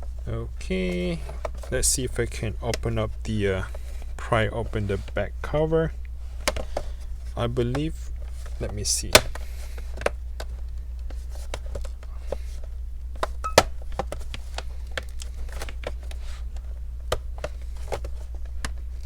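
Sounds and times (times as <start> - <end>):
low steady hum: 0.0 - 19.0
plastic laptop cover clicks: 9.1 - 9.4.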